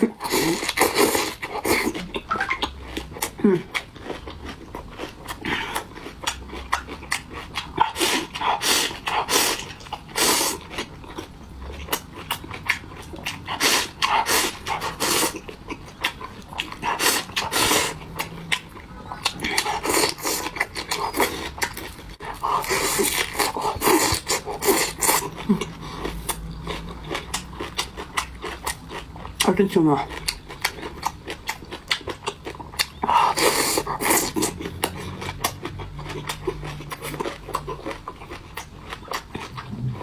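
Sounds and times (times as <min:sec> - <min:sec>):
slurping: 0:07.8 - 0:10.7, 0:13.3 - 0:15.5.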